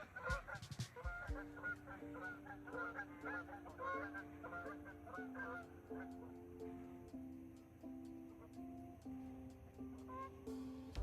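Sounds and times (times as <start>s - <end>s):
geese honking: 0.1s - 6.3s.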